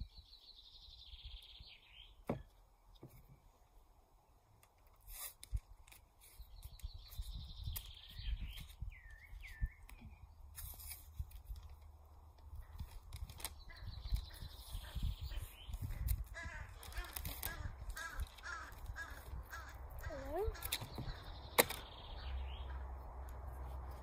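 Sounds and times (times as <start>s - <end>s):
wild birds chirping: 0.0s - 3.8s, 6.3s - 10.5s, 12.4s - 24.0s
thuds: 2.2s - 3.2s.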